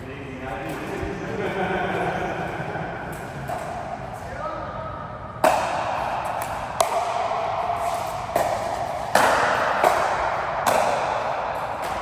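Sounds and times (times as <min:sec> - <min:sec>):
racket hitting ball: 0:05.4 - 0:12.0.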